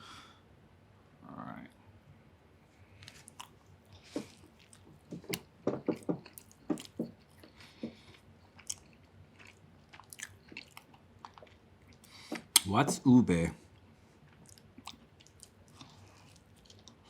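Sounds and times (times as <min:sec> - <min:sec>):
chewing bread roll: 0:02.8 - 0:12.7, 0:13.7 - 0:17.0.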